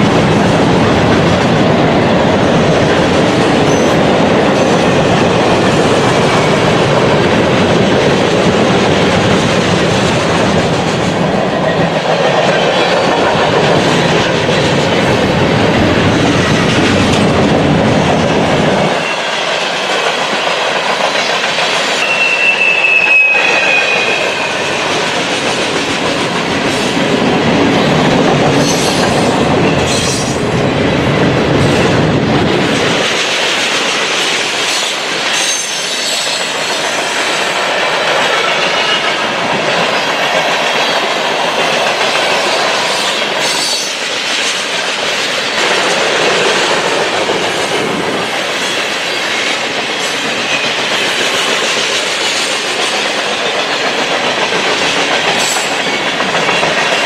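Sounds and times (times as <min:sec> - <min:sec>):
train wheels clattering over rails: 0:00.0 - 0:57.0
high wheel squeal: 0:22.0 - 0:24.8.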